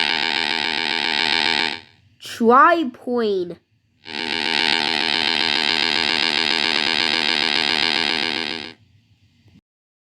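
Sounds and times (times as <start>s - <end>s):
propeller engine buzzing: 0.0s - 1.9s, 4.1s - 8.8s.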